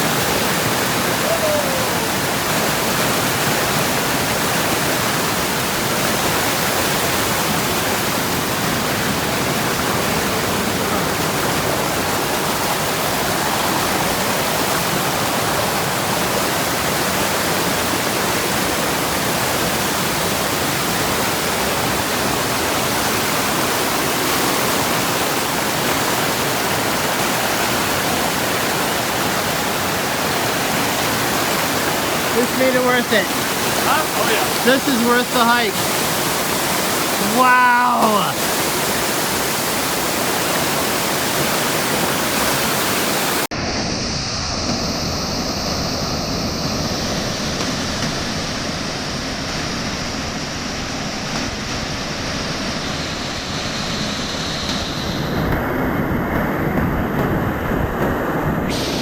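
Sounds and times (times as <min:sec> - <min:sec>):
waterfall rushing: 0:00.0 - 0:43.6, 0:58.7 - 0:59.0.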